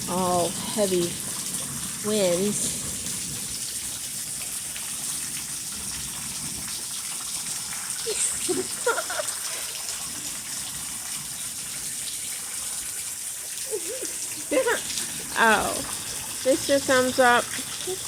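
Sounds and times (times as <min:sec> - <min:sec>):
rain pouring: 0:00.0 - 0:18.0.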